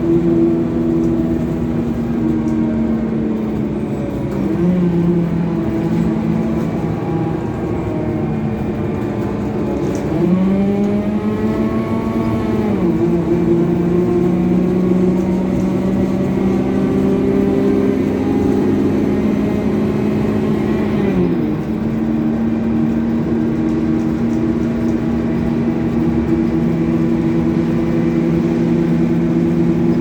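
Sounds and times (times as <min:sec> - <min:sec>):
coach engine droning: 0:00.0 - 0:30.0.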